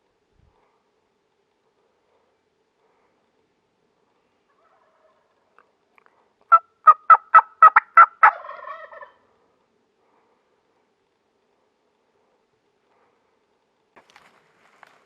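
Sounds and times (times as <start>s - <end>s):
turkey yelping: 4.5s - 5.3s, 6.5s - 9.2s.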